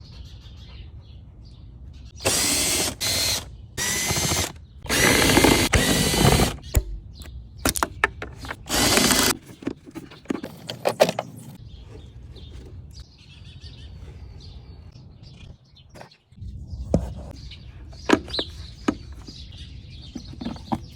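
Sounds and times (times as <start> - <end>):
cordless drill running: 2.2 - 6.7, 8.6 - 9.4
clicks and knocks of parts handled: 6.6 - 11.6.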